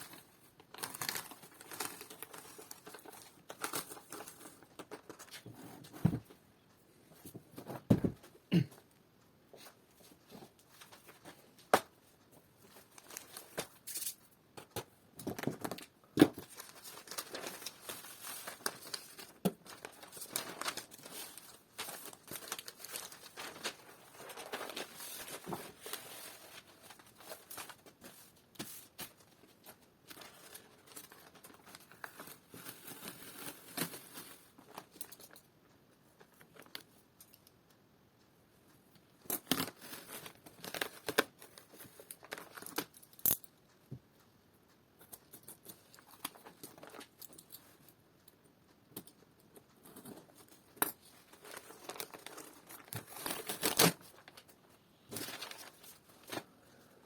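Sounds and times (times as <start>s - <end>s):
crinkly sheet rustling and tearing: 0.1s - 5.4s, 16.4s - 34.6s, 51.2s - 54.5s.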